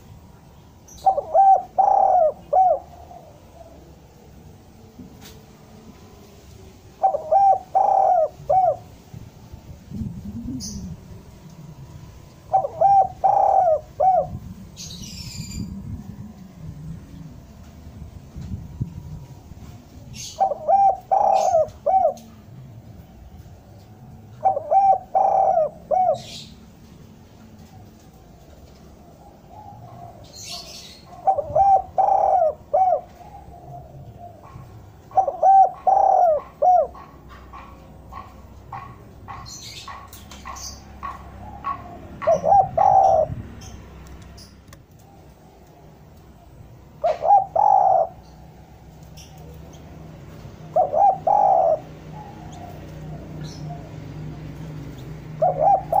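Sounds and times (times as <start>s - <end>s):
dove cooing: 0.9s - 4.5s, 7.0s - 9.0s, 9.9s - 11.3s, 12.4s - 17.3s, 20.1s - 23.0s, 23.8s - 26.7s, 27.4s - 43.8s, 44.4s - 56.0s
small birds chirping: 27.6s - 56.0s.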